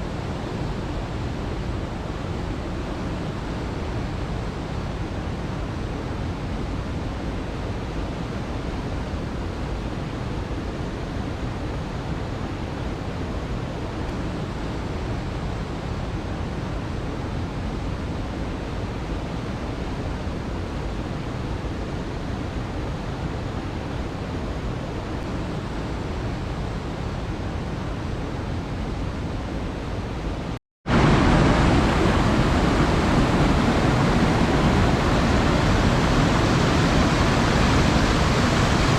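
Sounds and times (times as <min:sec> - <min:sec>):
waterfall roaring: 0:17.1 - 0:38.9.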